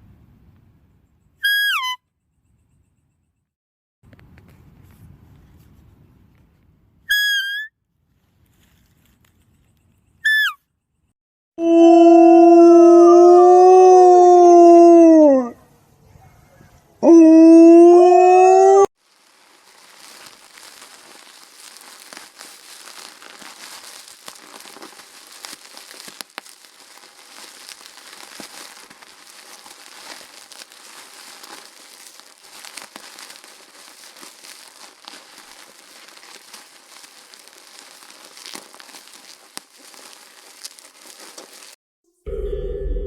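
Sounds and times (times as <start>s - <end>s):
crackling and rustling: 8.1s - 10.2s, 18.9s - 41.8s.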